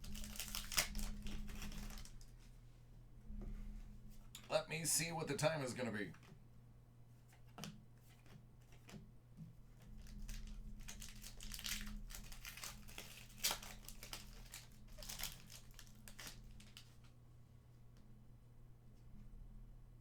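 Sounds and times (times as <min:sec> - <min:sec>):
plastic packaging crinkling: 0:00.0 - 0:02.3, 0:09.8 - 0:17.1.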